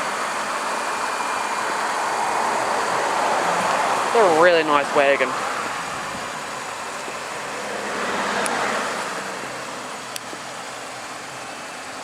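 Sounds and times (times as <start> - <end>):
vehicle passing by: 7.6 - 9.7.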